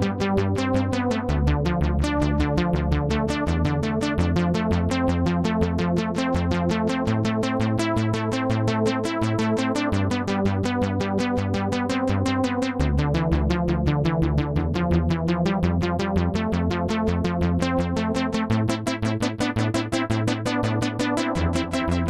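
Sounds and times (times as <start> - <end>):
rapid pulsing synthesizer notes: 0.0 - 22.0
sustained low synth chords: 12.8 - 22.0.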